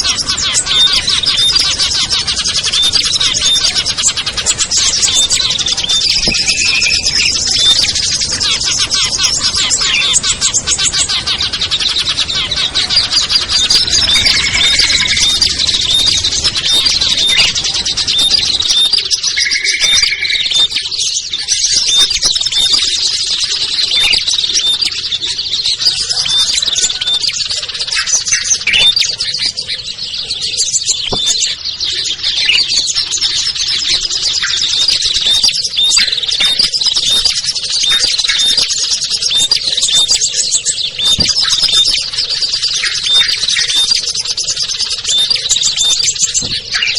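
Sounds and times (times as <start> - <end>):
songbirds chirping and twittering: 0.0 - 46.9
low whistled notes: 4.9 - 8.1.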